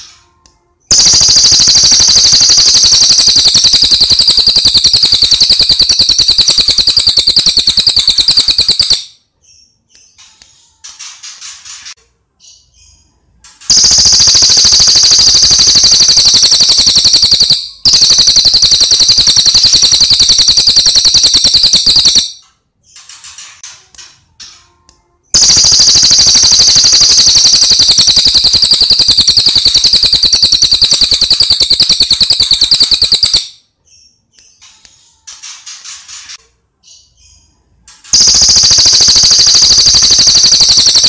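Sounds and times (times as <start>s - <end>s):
songbird rattling trills: 13.7s - 22.2s.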